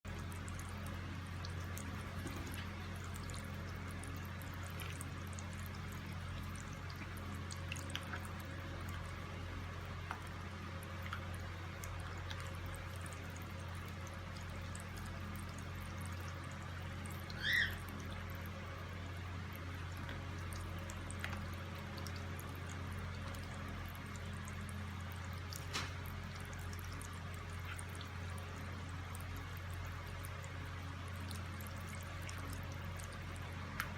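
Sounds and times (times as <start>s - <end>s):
small splashes and drips: 0.0s - 33.9s
water pouring: 1.5s - 9.1s
bird chirp: 17.3s - 17.8s.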